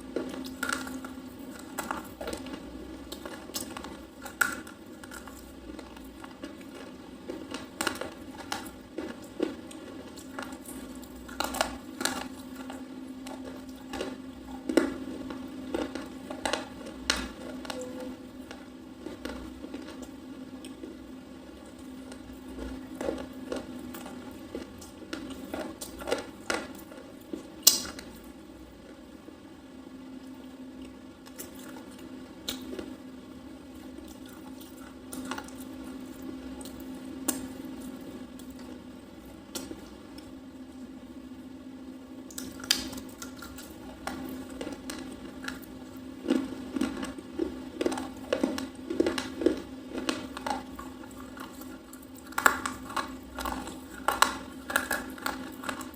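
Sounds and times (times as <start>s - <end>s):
crunchy chewing and biting: 0.0s - 29.0s, 42.3s - 55.9s
steady low hum: 0.0s - 55.9s.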